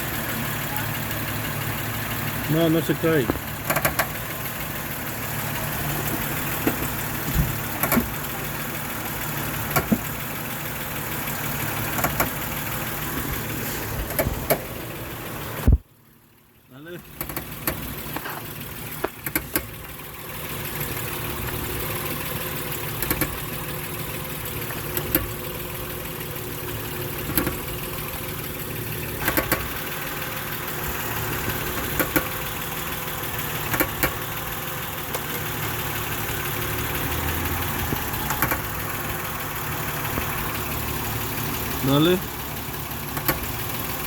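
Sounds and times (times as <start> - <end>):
car engine idling: 0.0 - 44.0
engine clicks or knocks: 2.6 - 8.3, 9.0 - 14.8, 17.1 - 19.9, 22.7 - 23.6, 24.5 - 25.8, 27.0 - 44.0.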